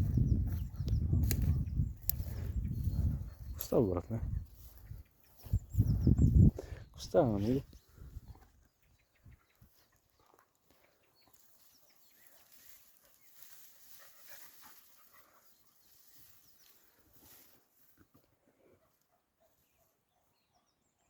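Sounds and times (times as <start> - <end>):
distant dogs barking: 18.7 - 21.0.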